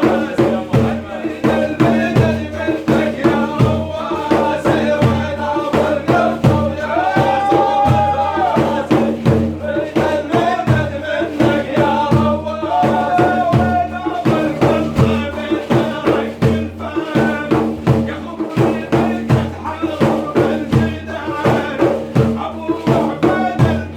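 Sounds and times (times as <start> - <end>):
drum beat: 0.0 - 23.9
man chanting with held notes: 0.0 - 23.9.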